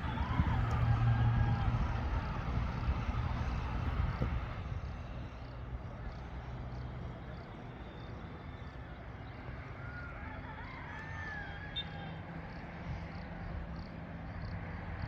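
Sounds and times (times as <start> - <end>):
engine humming: 0.0 - 9.6.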